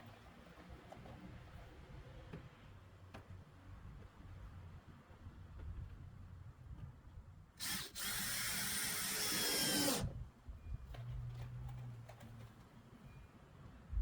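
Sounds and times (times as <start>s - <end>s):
power drill running: 7.6s - 10.1s.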